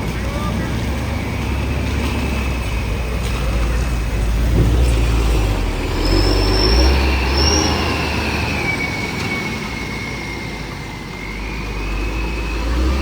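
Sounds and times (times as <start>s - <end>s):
high squeal: 0.0s - 13.0s
truck engine rumble: 0.0s - 13.0s
short higher squeaks: 4.7s - 13.0s.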